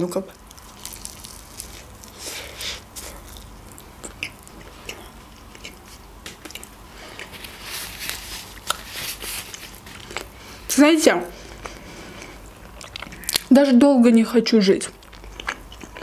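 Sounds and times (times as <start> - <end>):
chewing food with wet clicks: 3.0 - 7.4, 11.6 - 13.5, 14.8 - 16.0
paper napkin rustling: 7.3 - 10.0.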